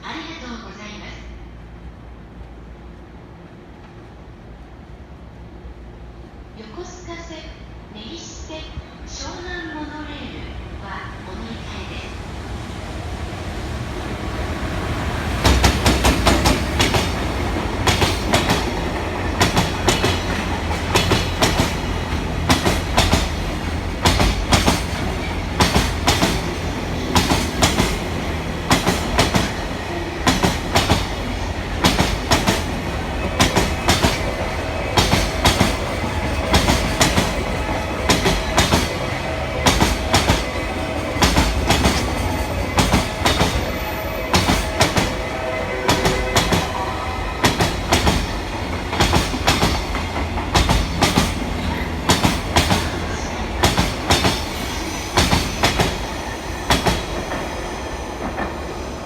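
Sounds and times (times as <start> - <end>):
freight train rumble: 0.0 - 59.0
wheels clacking over rail joints: 15.4 - 56.1.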